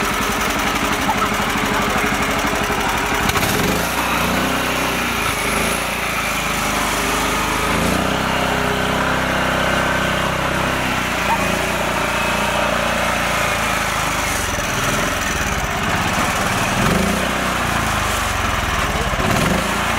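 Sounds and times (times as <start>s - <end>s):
small tractor engine running: 0.0s - 19.9s.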